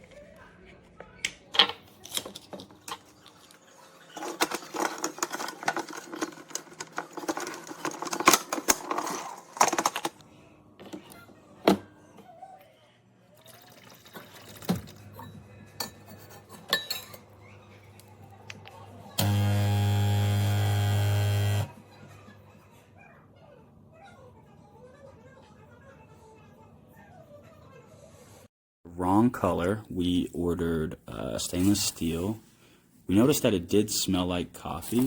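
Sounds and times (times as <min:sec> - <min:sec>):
kitchenware clinking and clattering: 0:01.2 - 0:10.2, 0:13.4 - 0:18.8.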